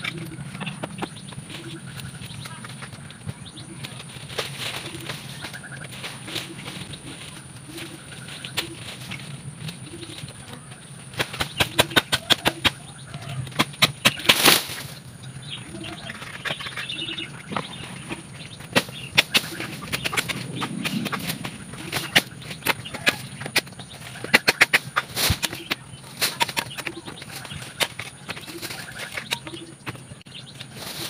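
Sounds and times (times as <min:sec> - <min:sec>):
birds chirping faintly: 0:00.0 - 0:31.0
leaves rustling: 0:01.4 - 0:31.0
branches snapping and cracking: 0:11.1 - 0:15.0.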